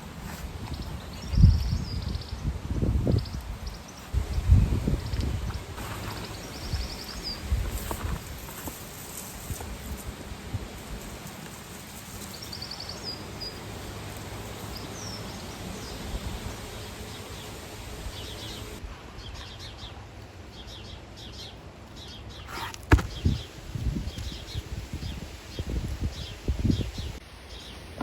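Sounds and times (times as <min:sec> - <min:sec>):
small birds chirping: 0:00.0 - 0:10.2, 0:11.0 - 0:28.0
soft thumps: 0:22.5 - 0:23.4
sharp knock: 0:22.9 - 0:23.3.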